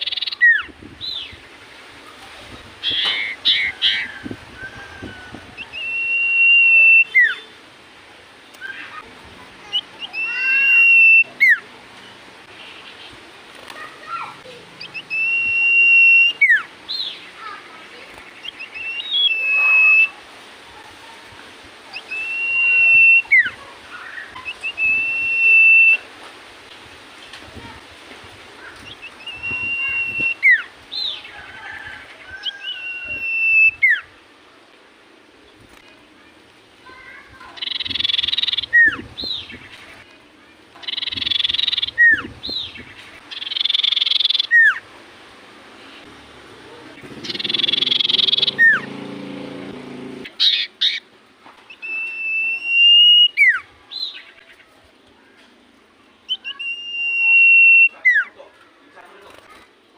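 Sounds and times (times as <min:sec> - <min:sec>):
bird chirps: 0:00.0 - 0:01.4, 0:09.7 - 0:11.6, 0:14.8 - 0:17.3, 0:18.2 - 0:20.1, 0:28.8 - 0:31.2, 0:37.6 - 0:39.8, 0:40.8 - 0:44.8, 0:47.0 - 0:48.9, 0:51.7 - 0:54.5, 0:56.3 - 0:58.4
bird whistling: 0:05.6 - 0:07.4, 0:10.1 - 0:11.6, 0:14.9 - 0:16.6, 0:18.5 - 0:20.1, 0:22.0 - 0:23.5, 0:24.2 - 0:26.0, 0:29.0 - 0:30.7, 0:32.6 - 0:34.0, 0:43.4 - 0:44.8, 0:47.2 - 0:48.9, 0:51.7 - 0:53.6, 0:56.3 - 0:58.3
soft bird chirps: 0:47.0 - 0:48.9.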